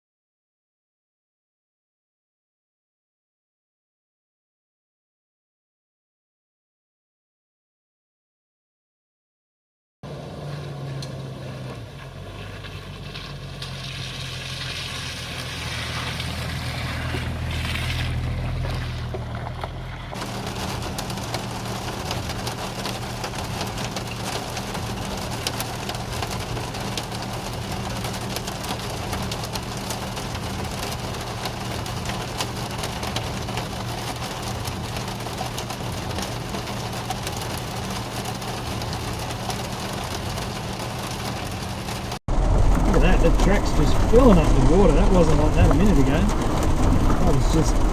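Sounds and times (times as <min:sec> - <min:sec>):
car engine running: 0:10.0 - 0:47.9
rain pattering on vehicle: 0:10.1 - 0:47.9.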